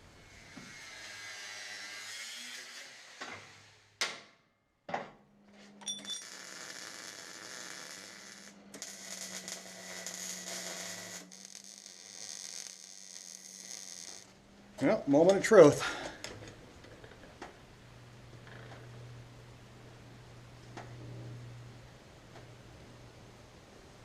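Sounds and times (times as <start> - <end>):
steady low hum: 14.2 - 24.0.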